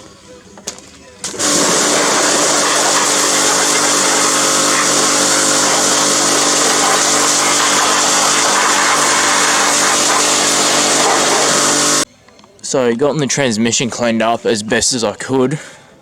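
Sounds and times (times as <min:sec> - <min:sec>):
loud hiss: 0:01.2 - 0:12.1
motor hum: 0:01.3 - 0:12.1.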